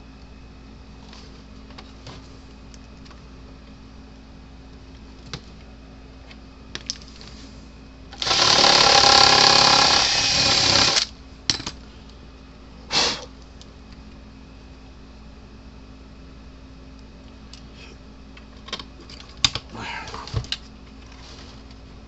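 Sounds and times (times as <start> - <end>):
power drill running: 8.2 - 11.1.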